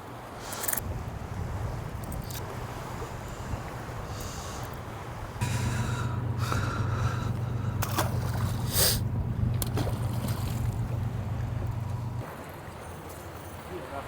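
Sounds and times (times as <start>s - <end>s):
boat motor humming: 0.8s - 12.2s.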